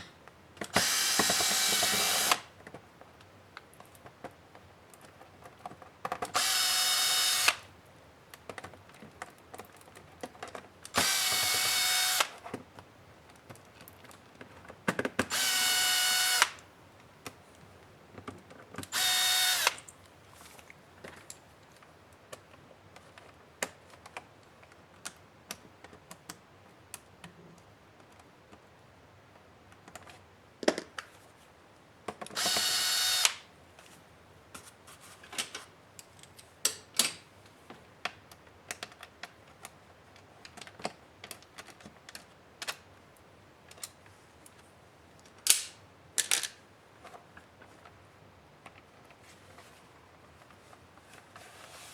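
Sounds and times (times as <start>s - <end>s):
electric screwdriver motor: 0.8s - 2.5s, 6.4s - 7.6s, 11.0s - 12.4s, 15.3s - 16.6s, 18.9s - 19.8s, 32.4s - 33.4s.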